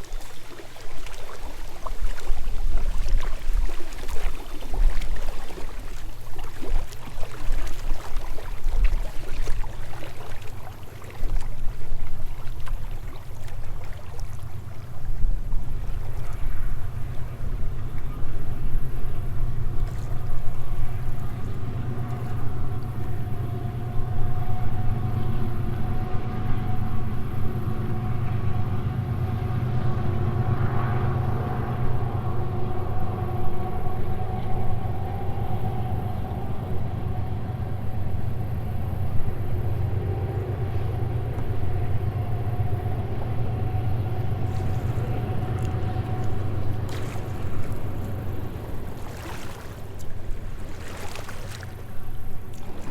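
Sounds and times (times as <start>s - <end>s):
steady humming tones: 0.0s - 52.9s
vehicle engine rumbling: 18.6s - 52.9s.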